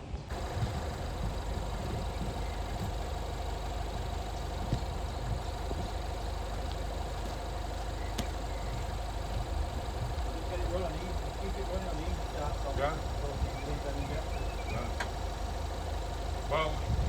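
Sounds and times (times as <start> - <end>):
engine idling: 0.1 - 17.0
light clicks: 0.3 - 9.8
faint steady whine: 0.3 - 17.0.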